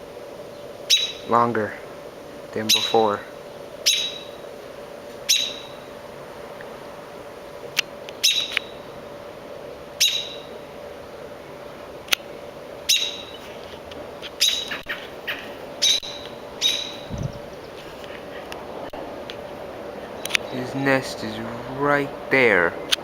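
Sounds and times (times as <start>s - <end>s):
faint steady hum: 0.0s - 23.0s
bird chirping: 0.5s - 1.3s, 2.7s - 4.4s, 5.3s - 5.9s, 8.2s - 8.8s, 10.0s - 10.6s, 12.9s - 13.6s, 14.4s - 18.4s
low thump: 17.1s - 17.5s.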